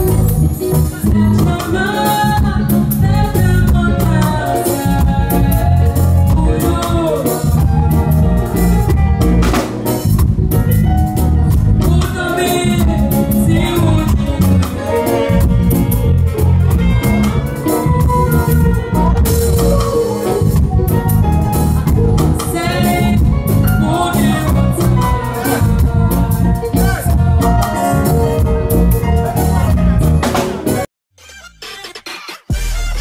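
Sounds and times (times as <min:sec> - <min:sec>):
bass: 0:00.0 - 0:31.9, 0:32.5 - 0:33.0
drum kit: 0:00.0 - 0:33.0
people singing gospel song: 0:21.8 - 0:30.8.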